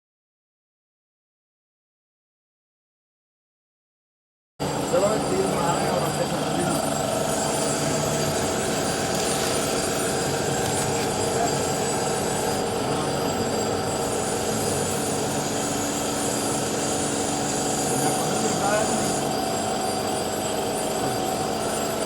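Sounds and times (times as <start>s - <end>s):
machine running with faint whine: 4.6s - 22.0s.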